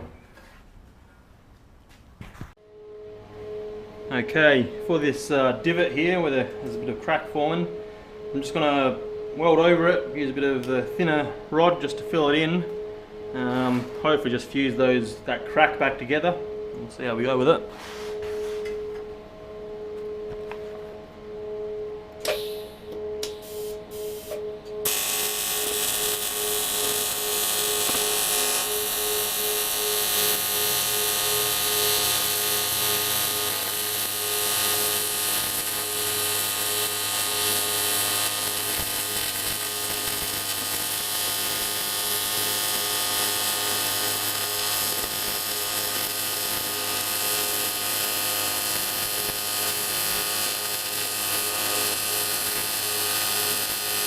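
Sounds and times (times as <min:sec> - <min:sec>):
low hum: 0:02.6 - 0:34.1
welding arc buzzing and hissing: 0:22.2 - 0:54.0.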